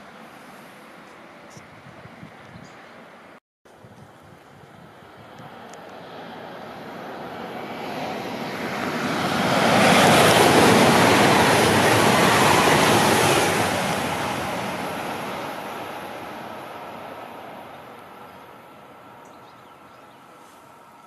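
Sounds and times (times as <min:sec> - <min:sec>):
high-speed train rushing past: 0:04.7 - 0:21.0.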